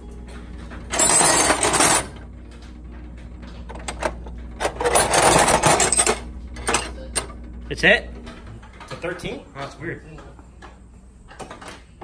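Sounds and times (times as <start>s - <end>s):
metal tools clattering in drawer: 0.9s - 2.2s, 3.7s - 7.3s.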